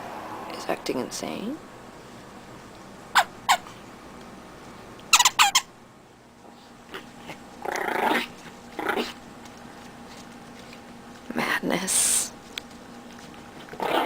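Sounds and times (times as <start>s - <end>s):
squeaky chew toy squeaks: 5.1s - 5.7s
puppy growling: 6.9s - 9.2s, 13.6s - 14.0s.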